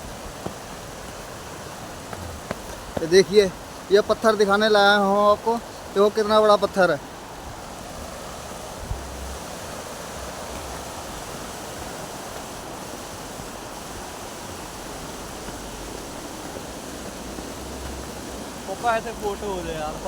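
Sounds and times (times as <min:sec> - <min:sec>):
outdoor rushing noise: 0:00.0 - 0:20.0
low rumbles on the microphone: 0:08.7 - 0:11.3.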